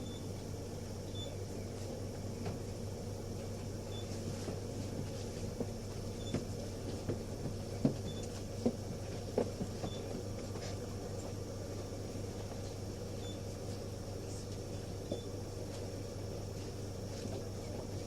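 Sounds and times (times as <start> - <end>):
bus diesel engine idling: 0.0 - 18.0.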